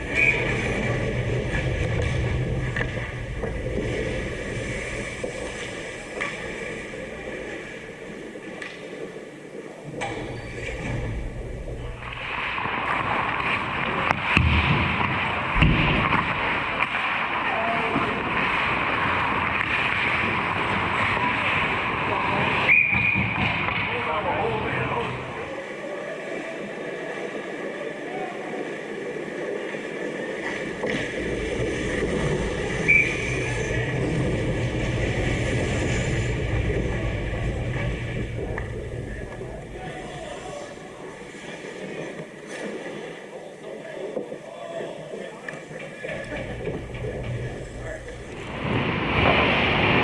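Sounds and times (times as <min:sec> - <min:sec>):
skates scraping ice: 0:00.0 - 0:09.6, 0:10.5 - 0:25.4, 0:27.5 - 0:44.2
low rumble of arena: 0:30.6 - 0:41.4, 0:45.7 - 0:50.0.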